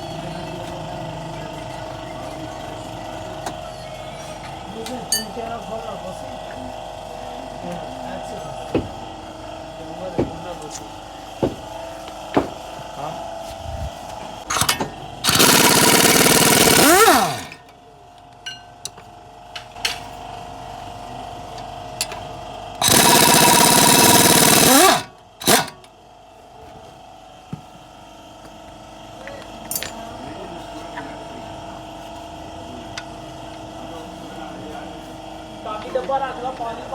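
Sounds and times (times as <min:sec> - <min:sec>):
power tool running: 0:14.5 - 0:17.7, 0:22.8 - 0:25.9.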